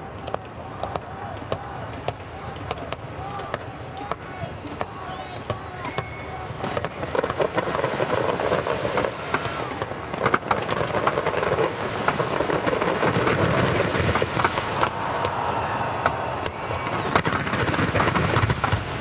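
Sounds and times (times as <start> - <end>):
fireworks crackling and banging: 0.0 - 19.0.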